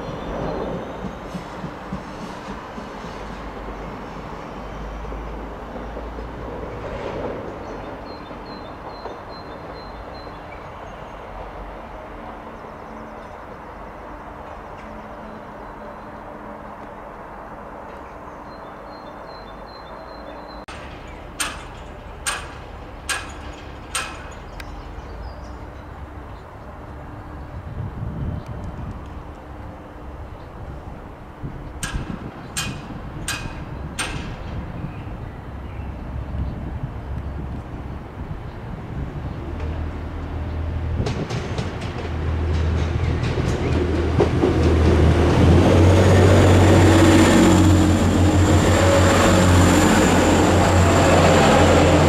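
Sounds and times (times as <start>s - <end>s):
approaching diesel train rumble: 0.0s - 52.0s
electric train rumbling on rails: 0.0s - 52.0s
sharp clacks: 20.7s - 24.7s.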